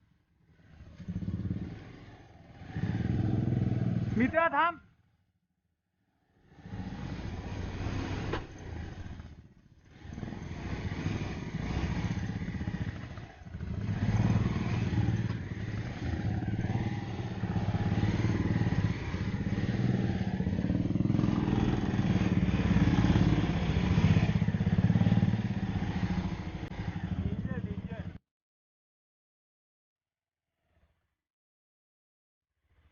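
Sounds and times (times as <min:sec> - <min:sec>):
motorcycle engine running: 0:00.8 - 0:04.2, 0:06.6 - 0:28.2.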